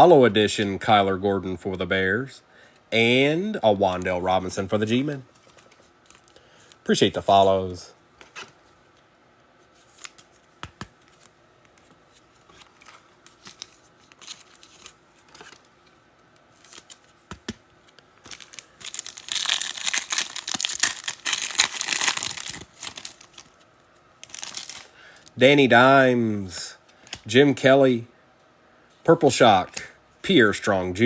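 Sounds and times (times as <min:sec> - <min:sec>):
card packs clicking and rustling: 0:12.5 - 0:15.8, 0:16.5 - 0:25.4
foil wrapper tearing and crinkling: 0:18.2 - 0:23.6, 0:24.2 - 0:24.9.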